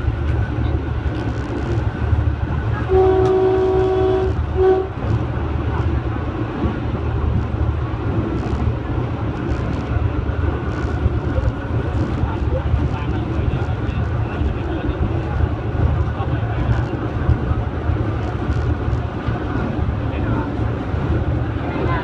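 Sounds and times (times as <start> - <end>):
train rumbling: 0.0 - 22.0
train horn: 2.8 - 5.0.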